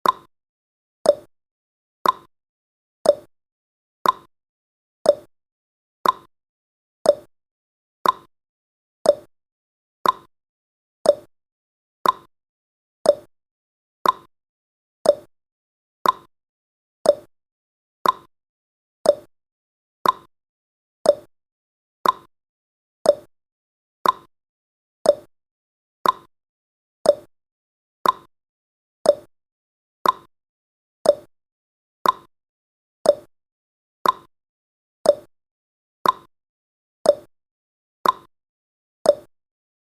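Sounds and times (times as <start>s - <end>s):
clock ticking: 2.0s - 2.3s, 4.0s - 4.3s, 6.0s - 6.3s, 8.0s - 8.3s, 10.0s - 10.3s, 12.0s - 12.3s, 14.0s - 14.3s, 15.1s - 15.3s, 16.0s - 16.3s, 18.0s - 18.3s, 19.1s - 19.3s, 20.0s - 20.3s, 21.1s - 21.3s, 22.0s - 22.3s, 24.0s - 24.3s, 26.0s - 26.3s, 28.0s - 28.3s, 29.1s - 29.3s, 30.0s - 30.3s, 31.1s - 31.3s, 32.0s - 32.3s, 33.1s - 33.3s, 34.0s - 34.3s, 35.1s - 35.3s, 36.0s - 36.3s, 38.0s - 38.3s, 39.1s - 39.3s.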